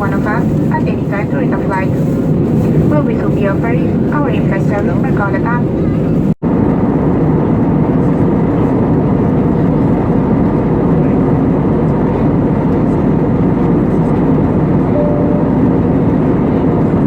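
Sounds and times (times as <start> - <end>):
airplane cabin noise: 0.0 - 17.0
faint tone: 14.9 - 16.1.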